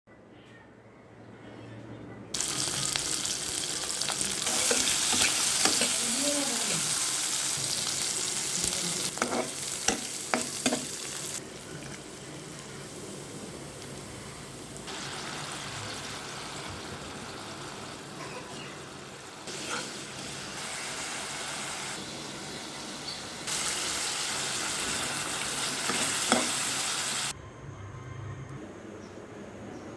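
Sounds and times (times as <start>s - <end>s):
crabs sizzling in hot oil: 2.4s - 27.4s
spatula scraping a pan: 9.1s - 10.9s.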